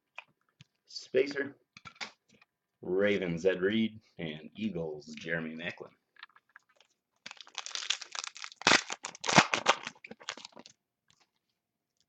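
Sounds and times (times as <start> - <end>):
plastic crinkling: 6.8 - 10.8.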